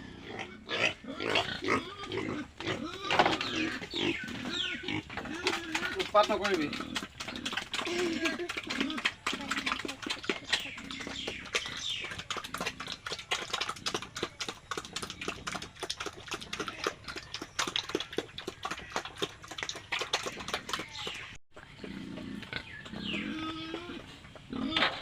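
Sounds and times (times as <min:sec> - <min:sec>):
pig squeals: 0:00.0 - 0:12.2, 0:22.0 - 0:25.0
pigs chomping feed: 0:00.3 - 0:25.0.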